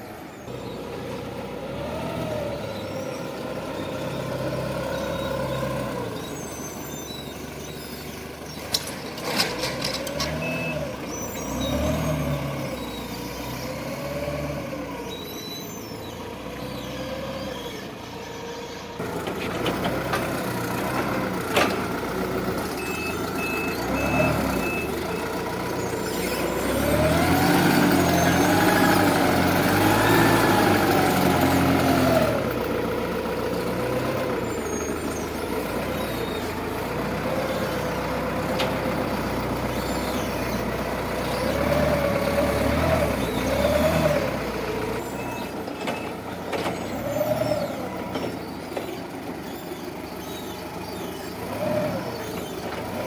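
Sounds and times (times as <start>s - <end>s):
forklift engine revving: 0.0s - 53.0s
reversing alarm beeps: 22.8s - 25.3s.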